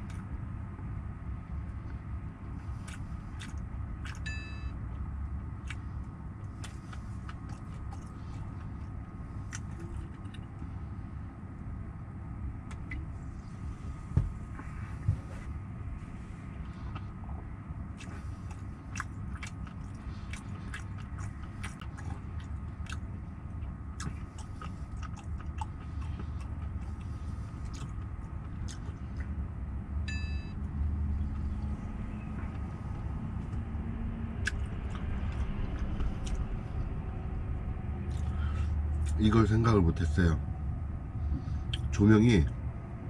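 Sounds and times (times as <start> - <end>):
low rumble: 0.0 - 43.0
chewing crispy fried chicken: 1.6 - 11.3, 16.4 - 30.0, 30.6 - 39.5, 41.0 - 42.4.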